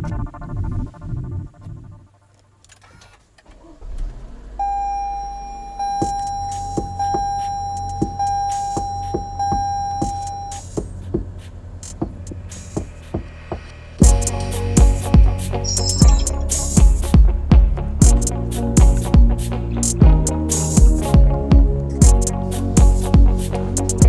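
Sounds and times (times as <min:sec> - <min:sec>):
electronic warning tone: 0:04.6 - 0:10.6, 0:14.0 - 0:17.3
regular clicking: 0:10.0 - 0:13.3, 0:18.0 - 0:21.2.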